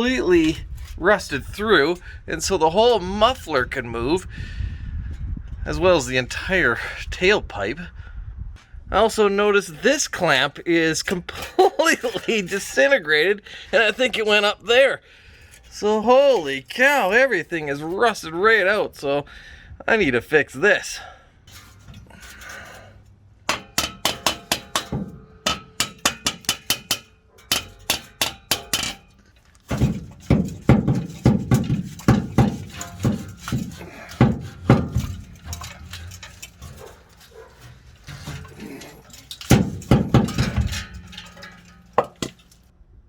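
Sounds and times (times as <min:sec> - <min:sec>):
metal clinking and clanking: 0:21.5 - 0:42.7.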